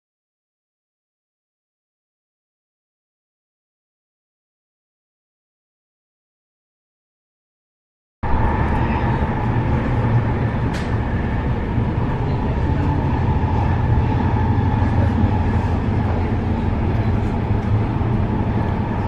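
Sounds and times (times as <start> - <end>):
train wheels rumbling: 8.2 - 19.0.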